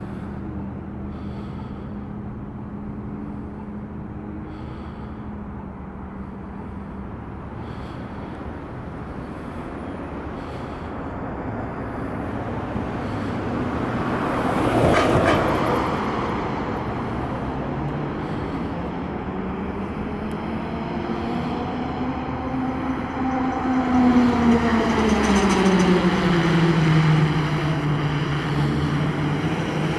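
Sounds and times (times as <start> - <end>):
traffic noise: 0.0 - 29.9
vehicle passing close by: 10.3 - 29.9.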